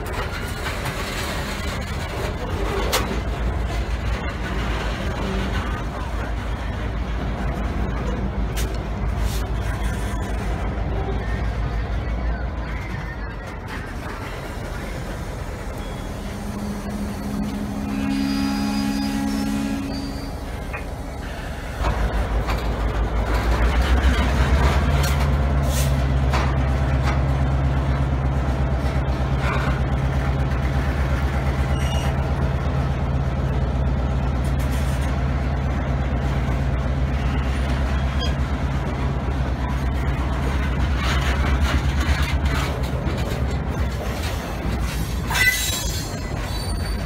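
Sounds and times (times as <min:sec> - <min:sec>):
diesel locomotive drone: 0:00.0 - 0:47.0
wheels and couplers clanking: 0:40.5 - 0:47.0.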